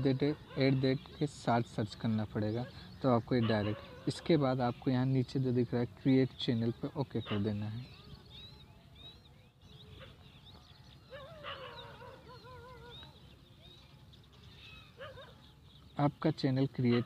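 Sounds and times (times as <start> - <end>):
faint bird chirps and calls: 0.0 - 17.0
wavering bird call: 10.9 - 15.6.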